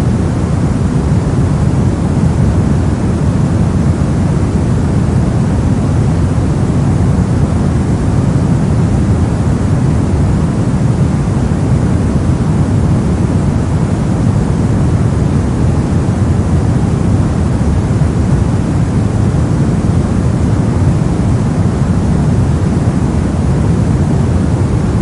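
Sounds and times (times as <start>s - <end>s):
brown noise: 0.0s - 25.0s.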